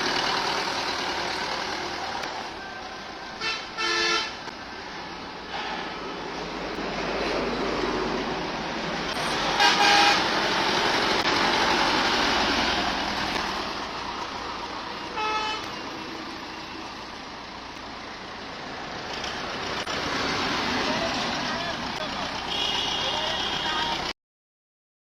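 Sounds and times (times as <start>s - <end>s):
tractor diesel engine running: 0.0s - 3.8s, 4.4s - 24.1s
tractor horn toots: 3.4s - 4.4s, 9.5s - 10.2s, 15.2s - 15.7s, 22.5s - 23.9s.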